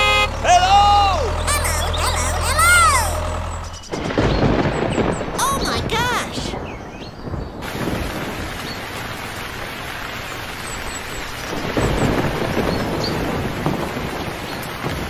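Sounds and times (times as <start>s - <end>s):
thunder rumble: 3.2s - 15.0s
steady rain falling: 3.3s - 15.0s.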